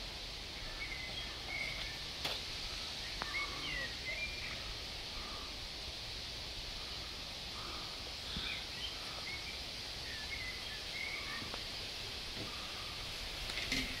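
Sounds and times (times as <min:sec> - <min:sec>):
steady background hiss: 0:00.0 - 0:14.0
faint bird chirps: 0:00.5 - 0:02.1, 0:02.8 - 0:05.5, 0:06.8 - 0:11.9.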